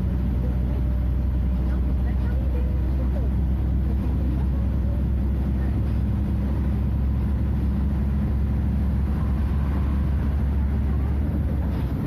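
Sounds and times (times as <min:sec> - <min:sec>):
diesel bus engine droning: 0:00.0 - 0:12.0.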